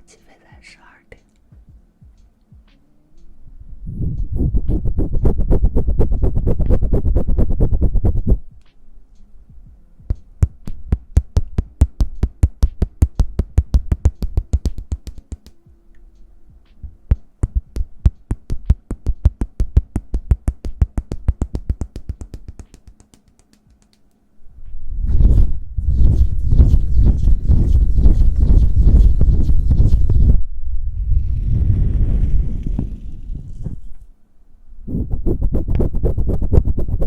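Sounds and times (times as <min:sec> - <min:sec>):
sharp hand taps: 0:10.0 - 0:15.8, 0:16.7 - 0:24.2.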